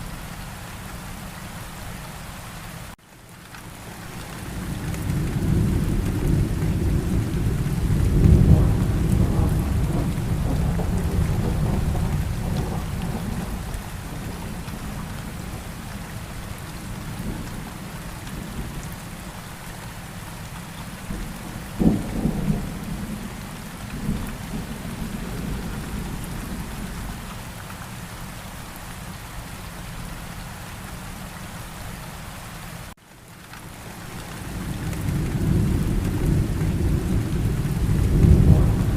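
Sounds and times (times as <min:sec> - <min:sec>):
steady rain: 0:00.0 - 0:38.9
thunder rumbling: 0:04.6 - 0:18.9, 0:21.0 - 0:27.3, 0:34.5 - 0:38.9.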